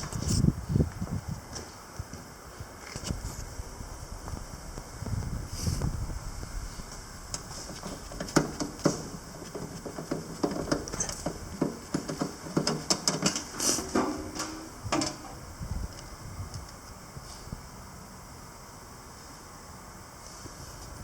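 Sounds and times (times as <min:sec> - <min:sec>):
welder arc crackling: 0:03.0 - 0:17.0.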